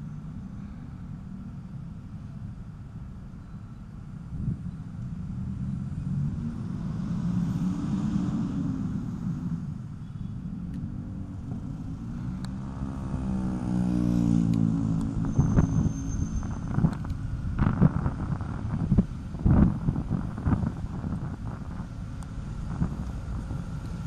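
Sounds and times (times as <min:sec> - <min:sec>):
vehicle engine running: 0:08.8 - 0:24.0.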